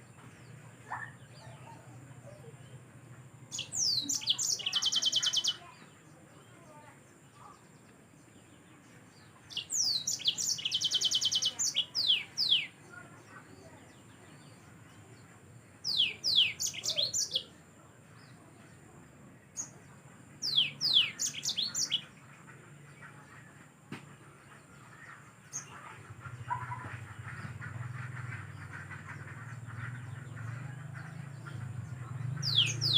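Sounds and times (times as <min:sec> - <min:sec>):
canary singing: 0:03.5 - 0:05.7, 0:09.5 - 0:12.8, 0:15.9 - 0:17.5, 0:20.4 - 0:22.1, 0:28.4 - 0:32.9.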